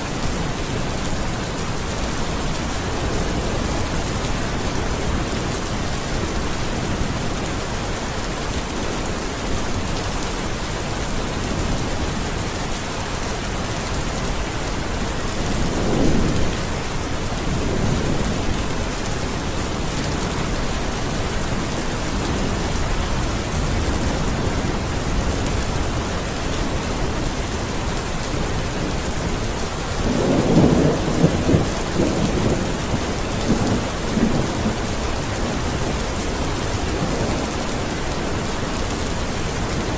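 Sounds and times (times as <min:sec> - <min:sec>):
steady rain falling: 0:00.0 - 0:39.9
thunder rumbling: 0:28.4 - 0:38.3.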